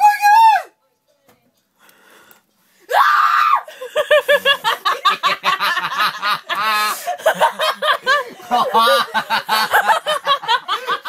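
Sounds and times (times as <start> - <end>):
person laughing uncontrollably: 3.7 - 11.0.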